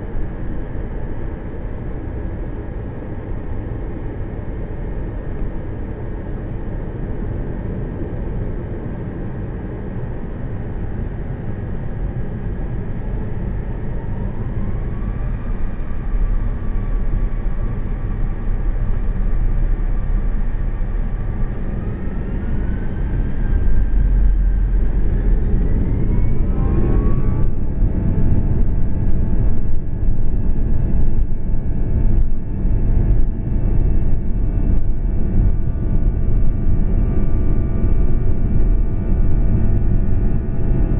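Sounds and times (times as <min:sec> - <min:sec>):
jet engines spooling up: 0:20.4 - 0:30.6.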